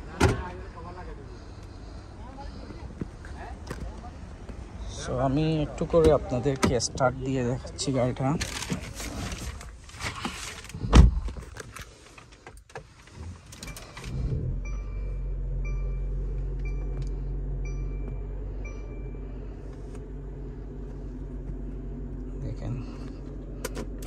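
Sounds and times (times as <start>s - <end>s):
car engine starting and idling: 0.0s - 24.0s
two-tone chime beeping: 14.6s - 17.0s, 17.6s - 19.3s.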